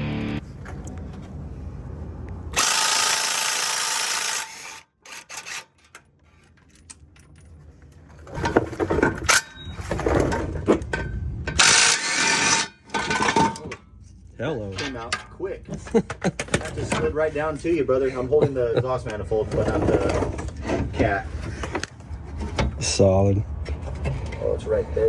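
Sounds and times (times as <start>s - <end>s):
power tool running: 2.6s - 5.6s
tools clanking on metal: 8.3s - 13.9s, 14.6s - 17.2s.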